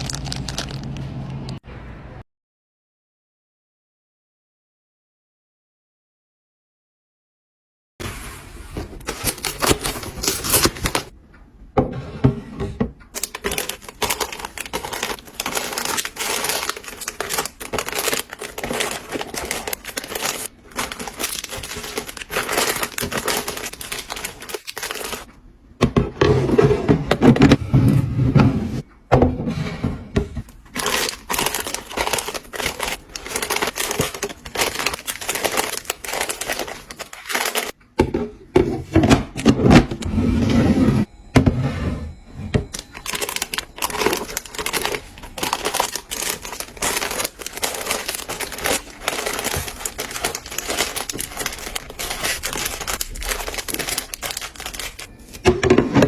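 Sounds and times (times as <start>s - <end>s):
plastic packaging crinkling: 0.0s - 1.6s, 8.8s - 11.1s, 13.2s - 25.3s, 30.5s - 37.8s, 42.7s - 55.5s
items clicking and knocking: 11.8s - 28.0s, 30.2s - 40.1s, 42.5s - 56.0s.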